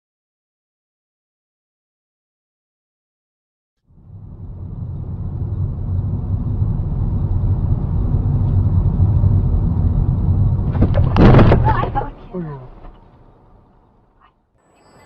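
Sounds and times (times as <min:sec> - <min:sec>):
car driving rumble: 0:03.9 - 0:14.3.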